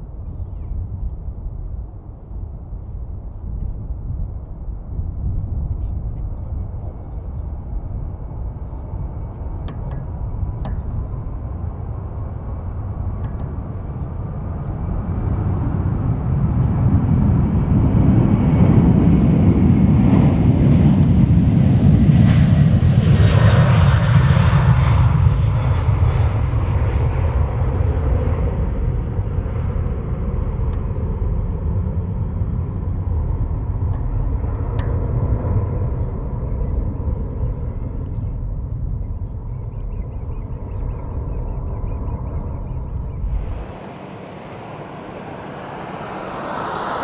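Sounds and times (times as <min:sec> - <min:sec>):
jet engines rumbling: 0:00.0 - 0:24.0, 0:40.7 - 0:47.0
faint high whine: 0:41.6 - 0:47.0.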